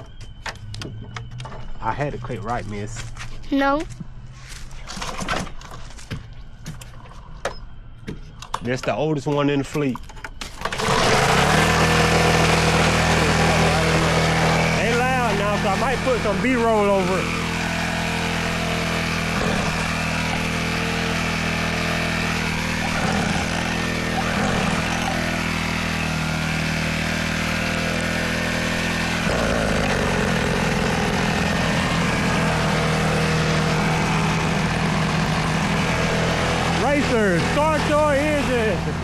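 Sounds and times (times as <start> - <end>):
dirt bike engine idling: 10.7 - 39.0.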